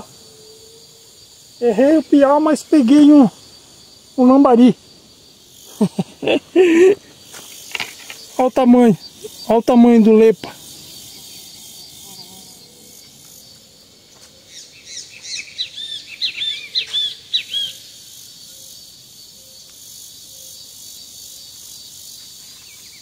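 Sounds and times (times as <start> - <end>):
insects droning: 0.0 - 23.0
bird singing chirping notes: 14.5 - 17.9.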